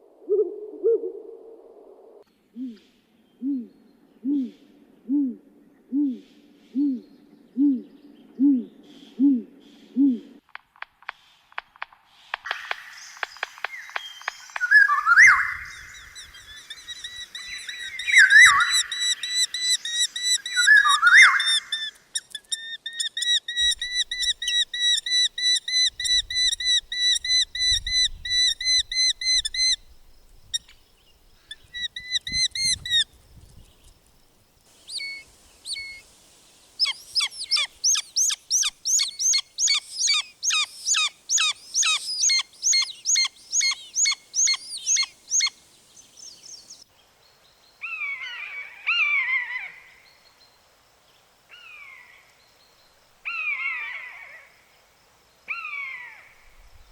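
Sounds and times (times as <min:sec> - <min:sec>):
bird whistled notes: 0:14.6 - 0:29.8, 0:36.8 - 0:45.5.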